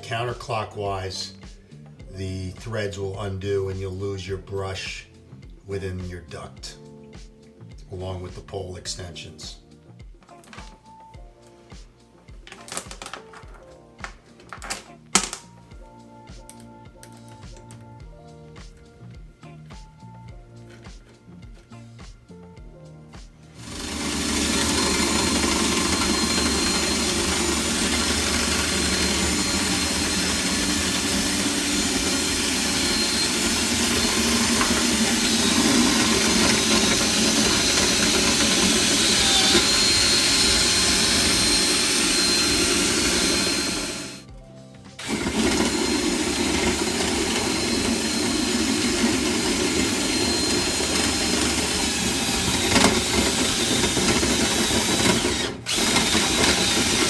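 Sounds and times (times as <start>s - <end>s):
power drill running: 23.6s - 44.3s, 45.0s - 57.0s.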